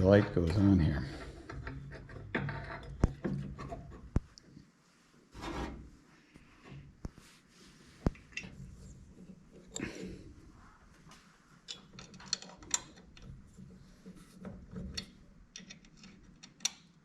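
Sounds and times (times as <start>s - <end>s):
sharp clicks and knocks: 0.0s - 4.5s, 11.7s - 17.0s
scraping and rubbing: 5.2s - 15.2s.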